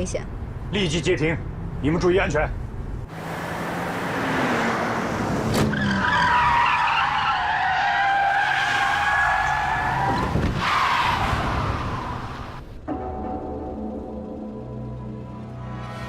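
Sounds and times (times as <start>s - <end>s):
car engines running hard: 0.3s - 12.8s
tyres squealing: 5.6s - 12.6s.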